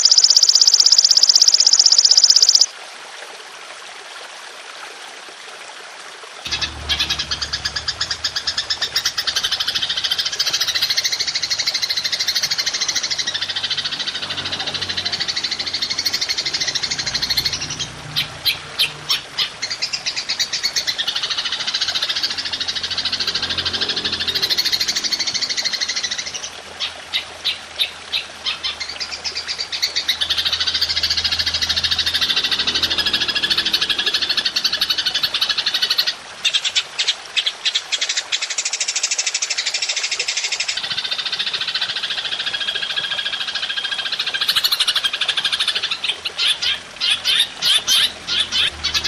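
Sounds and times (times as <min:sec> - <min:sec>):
grasshopper shrill buzzing trill: 0:00.0 - 0:02.7.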